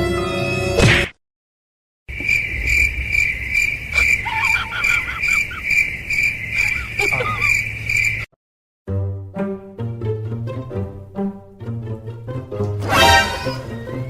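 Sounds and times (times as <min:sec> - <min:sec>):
cricket chirping: 0:02.1 - 0:08.3.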